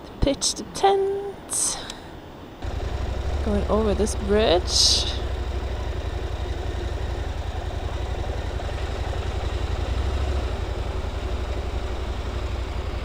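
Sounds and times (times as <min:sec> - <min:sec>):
wind and road noise: 0:01.2 - 0:13.0
motorcycle engine running: 0:02.6 - 0:13.0.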